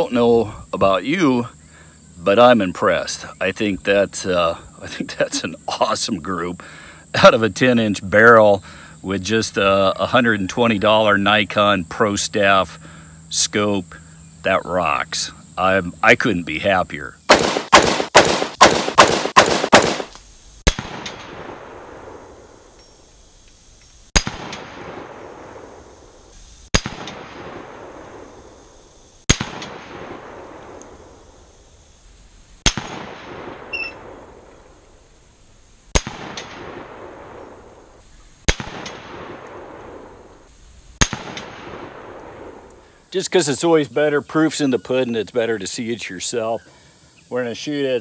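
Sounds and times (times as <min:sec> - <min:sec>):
rifle gunshots with echo: 0:17.3 - 0:22.4, 0:24.2 - 0:25.7, 0:29.3 - 0:30.7, 0:32.6 - 0:34.4, 0:35.9 - 0:37.6, 0:38.5 - 0:40.2, 0:41.0 - 0:42.6.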